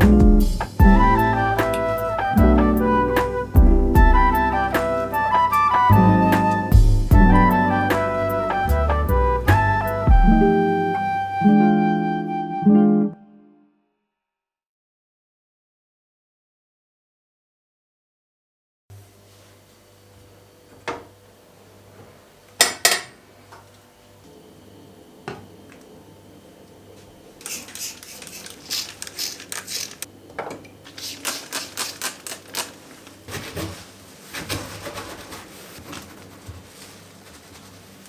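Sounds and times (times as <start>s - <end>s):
low steady hum: 0.0s - 11.5s
scraping and rubbing strokes: 27.4s - 30.1s, 33.3s - 38.0s.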